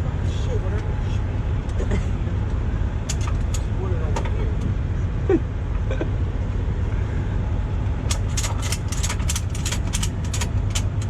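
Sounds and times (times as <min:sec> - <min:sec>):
diesel truck engine idling: 0:00.0 - 0:11.0
metallic clinks and rattles: 0:08.1 - 0:11.0.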